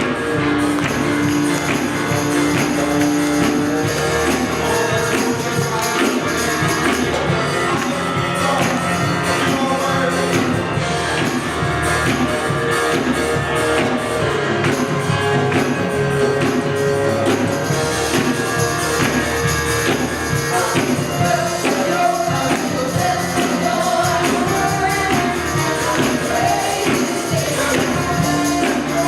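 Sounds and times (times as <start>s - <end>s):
person singing: 0.0s - 11.2s, 20.3s - 29.0s
live worship band music: 0.0s - 29.0s
tambourine: 0.0s - 29.0s.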